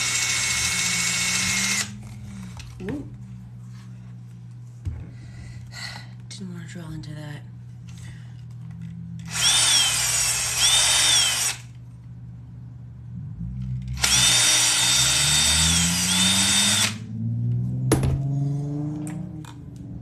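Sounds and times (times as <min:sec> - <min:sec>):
power drill boring through leather: 0:00.0 - 0:02.0, 0:09.2 - 0:11.7, 0:14.0 - 0:17.1.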